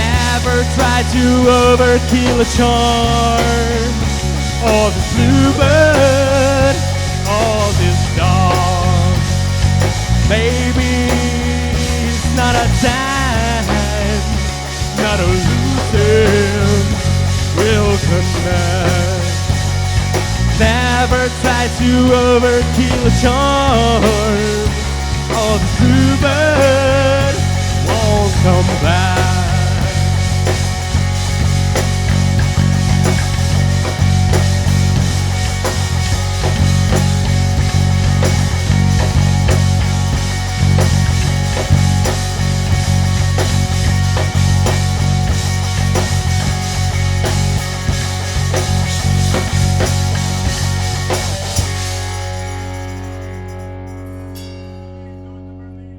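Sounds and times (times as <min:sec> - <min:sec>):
drum hits: 0:00.0 - 0:53.2
rock band playing: 0:00.0 - 0:55.8
heavy steady bass: 0:00.0 - 0:55.9
held guitar chord ringing: 0:46.5 - 0:55.9.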